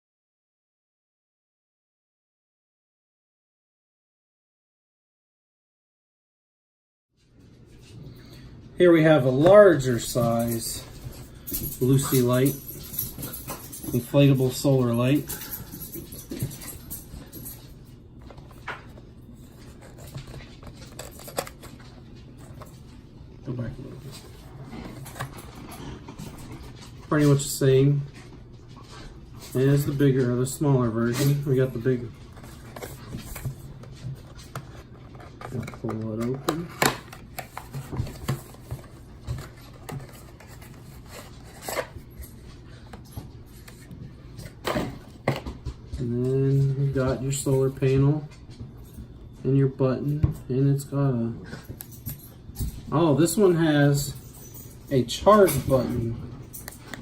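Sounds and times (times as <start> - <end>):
packaging clicks and rustles: 9.4 - 27.4, 29.5 - 45.6.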